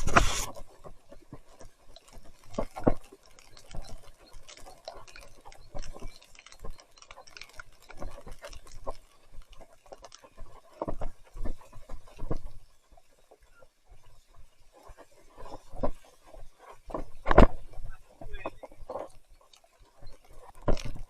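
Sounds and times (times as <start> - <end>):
tyres in wet mud: 0.0 - 12.4.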